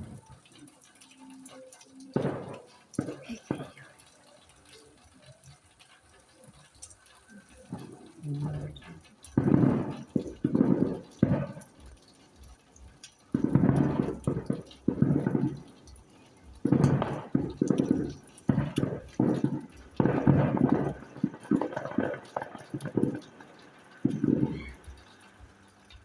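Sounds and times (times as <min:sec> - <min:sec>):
people talking: 0:00.0 - 0:05.4, 0:07.2 - 0:10.9, 0:24.0 - 0:24.9.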